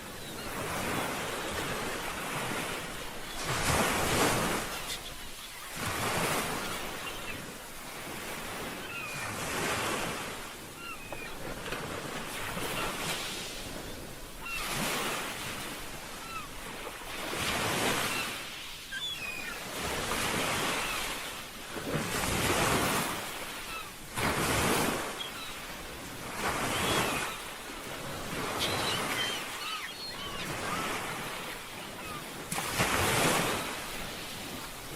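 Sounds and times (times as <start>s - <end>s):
wind: 0.0s - 34.9s
faint short chirping calls: 18.0s - 19.7s, 28.4s - 32.3s.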